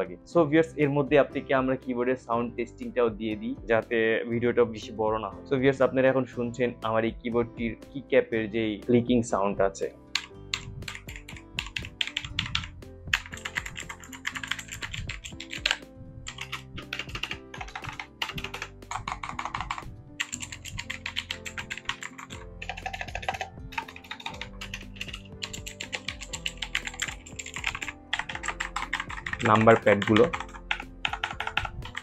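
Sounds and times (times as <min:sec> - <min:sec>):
clicky mechanical keyboard typing: 0:10.2 - 0:32.0.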